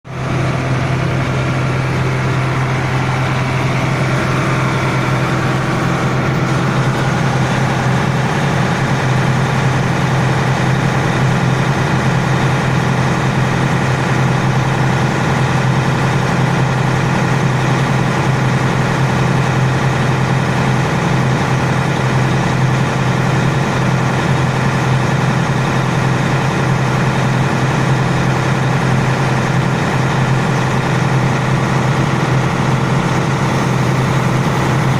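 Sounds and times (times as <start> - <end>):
air conditioning unit humming: 0.2 - 10.3.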